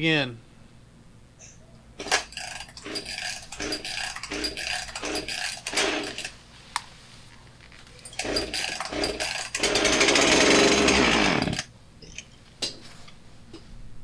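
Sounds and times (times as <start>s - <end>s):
chainsaw recoil starter pulls: 2.0s - 6.4s, 8.0s - 11.7s.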